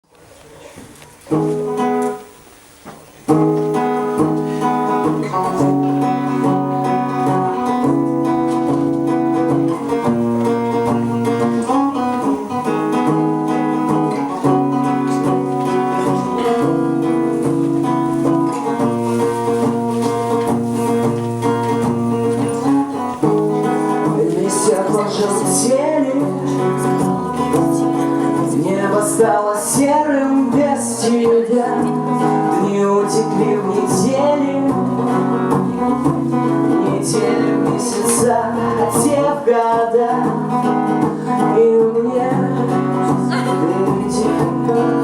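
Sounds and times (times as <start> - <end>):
acoustic guitar chords: 0.6 - 45.0.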